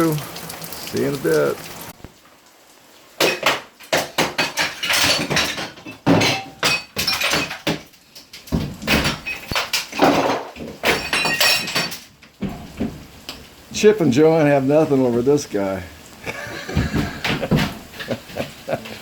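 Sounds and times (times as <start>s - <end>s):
debris clinking as it falls: 3.2s - 13.0s.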